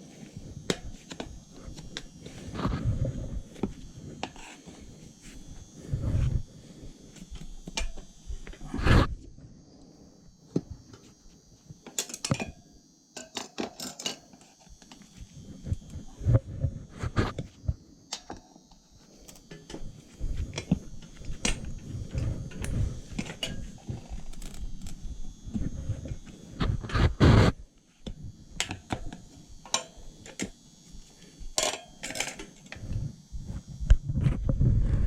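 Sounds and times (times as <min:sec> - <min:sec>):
hand tools and metal parts clinking: 0:13.2 - 0:15.0, 0:29.6 - 0:30.5, 0:31.6 - 0:32.8.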